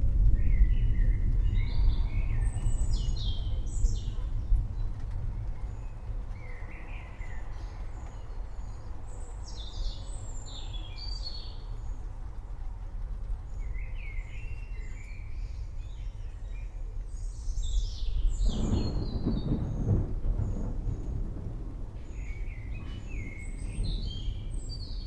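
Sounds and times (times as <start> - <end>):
thunder: 0.0 - 8.0, 17.8 - 25.0
low storm rumble: 0.0 - 25.0
birds chirping: 17.7 - 25.0.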